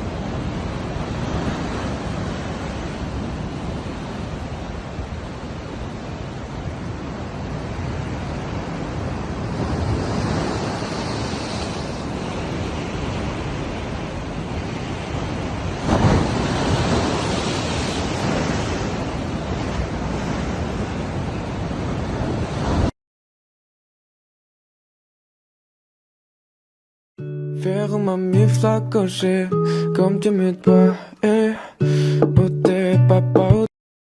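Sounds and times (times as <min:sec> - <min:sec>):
ocean surf rushing: 0:00.0 - 0:22.9
wave breaking: 0:00.0 - 0:22.9.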